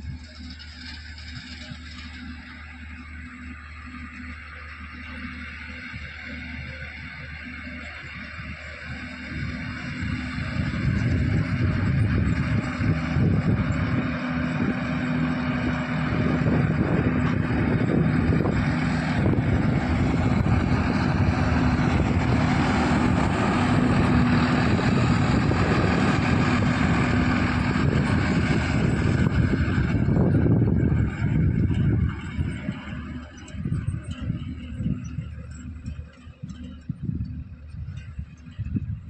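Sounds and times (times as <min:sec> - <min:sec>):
tractor diesel engine running: 0:00.0 - 0:39.0
wind on microphone: 0:09.4 - 0:39.0.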